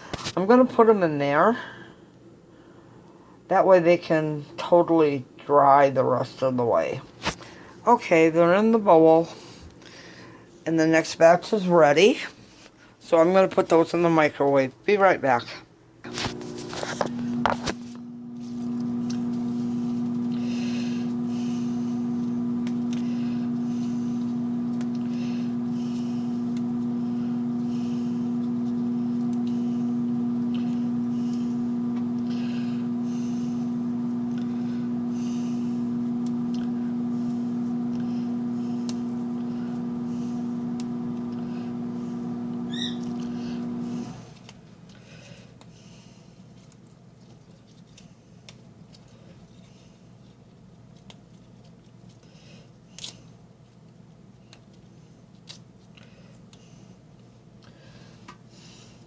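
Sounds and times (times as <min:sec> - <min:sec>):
microwave oven humming: 0:16.0 - 0:44.5.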